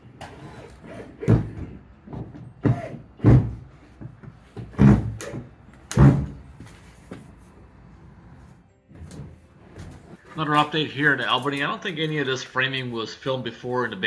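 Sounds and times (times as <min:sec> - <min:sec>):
heavy thumps and bangs: 0:01.2 - 0:06.6.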